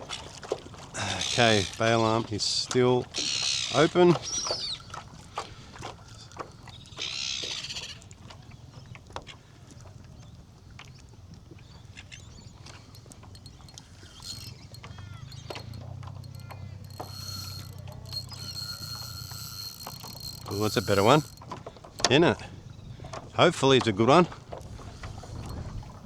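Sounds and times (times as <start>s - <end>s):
fishing reel whirring: 12.5s - 22.2s
fishing gear knocking: 12.7s - 22.2s.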